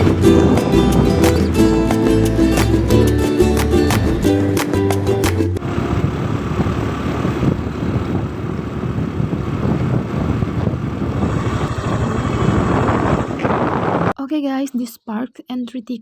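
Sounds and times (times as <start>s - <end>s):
wind buffeting microphone: 0.0s - 2.2s, 5.6s - 14.2s
loud rumbling noise: 0.0s - 2.4s, 5.5s - 14.2s.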